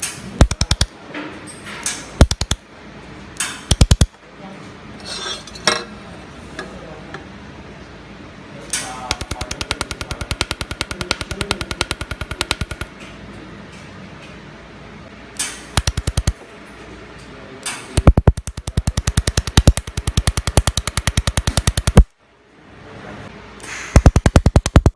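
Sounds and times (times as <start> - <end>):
laser welder pulsing cracks: 0.0 - 0.9, 2.2 - 2.6, 3.4 - 4.1, 8.7 - 12.9, 15.4 - 16.4, 18.0 - 22.1, 23.8 - 24.9.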